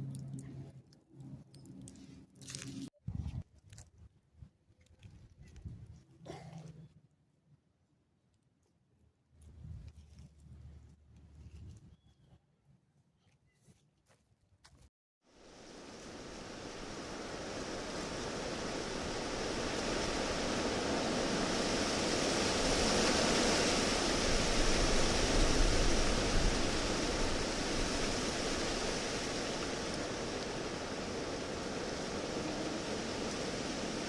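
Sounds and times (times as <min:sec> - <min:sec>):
rushing noise with low rumble: 0:15.3 - 0:34.0.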